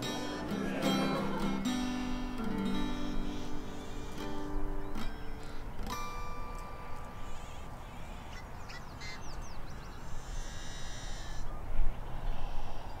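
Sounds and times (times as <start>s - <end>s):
small bird chirping: 6.6s - 11.6s.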